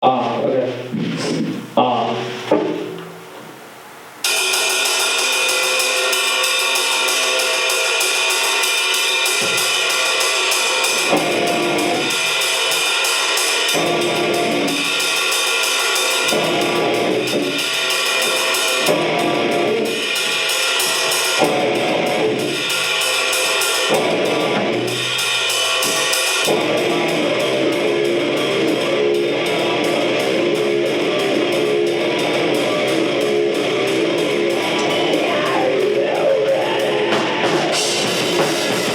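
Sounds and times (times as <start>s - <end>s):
drum kit with cymbals: 4.2s - 38.9s
guitar chords: 10.9s - 12.4s, 13.8s - 15.0s, 16.2s - 17.6s, 18.2s - 22.7s, 23.8s - 25.2s, 26.0s - 38.9s.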